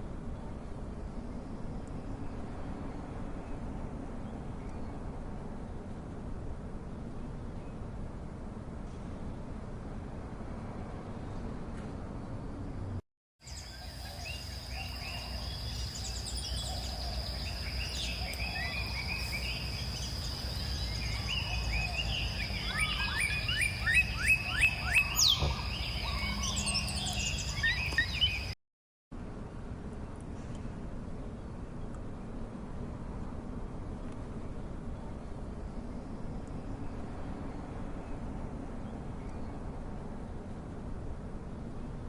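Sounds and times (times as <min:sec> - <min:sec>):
songbirds chirping and whistling: 0:13.4 - 0:28.6.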